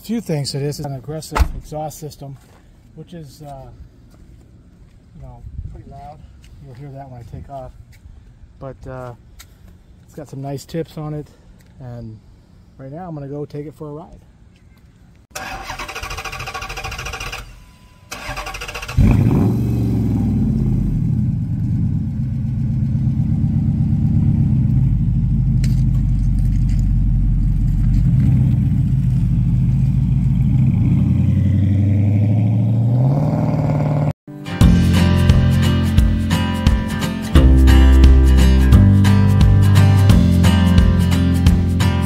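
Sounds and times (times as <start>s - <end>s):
car starter cranking: 15.3s - 19.4s.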